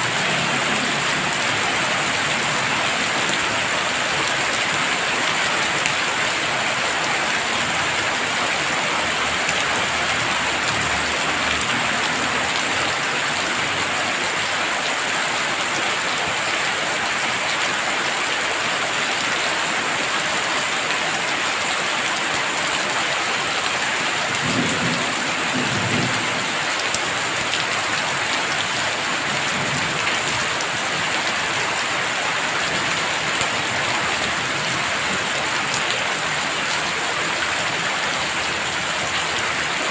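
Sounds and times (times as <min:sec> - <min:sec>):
heavy rain pouring: 0:00.0 - 0:39.9
low rumble of thunder: 0:24.4 - 0:26.6.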